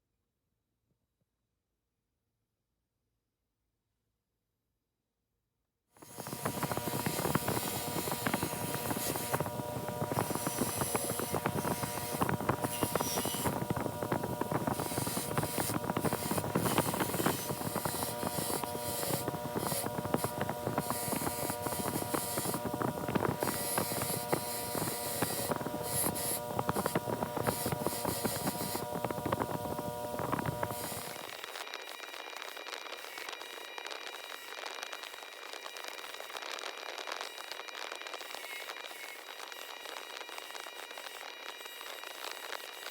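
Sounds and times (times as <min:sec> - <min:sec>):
wire wheel brushing metal: 0:14.7 - 0:31.2.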